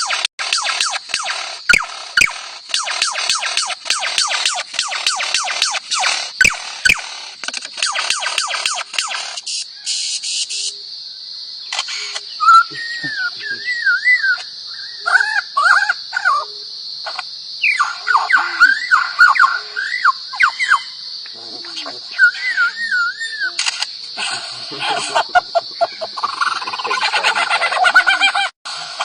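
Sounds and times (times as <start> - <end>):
bird whistled warbling: 0.0 - 7.1, 12.0 - 16.6, 17.6 - 21.0, 22.1 - 23.7
bird mimicking mechanical clicks: 0.0 - 10.8, 11.7 - 13.2, 17.0 - 29.0.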